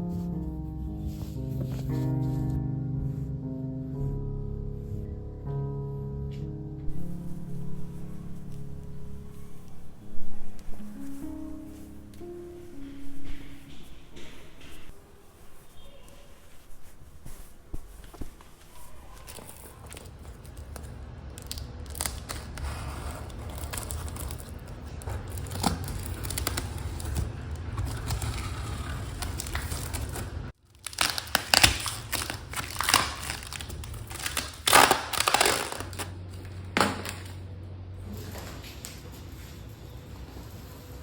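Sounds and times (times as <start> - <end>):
low steady hum: 0.0 - 40.0
crinkling and rustling: 0.1 - 2.6, 6.9 - 37.4.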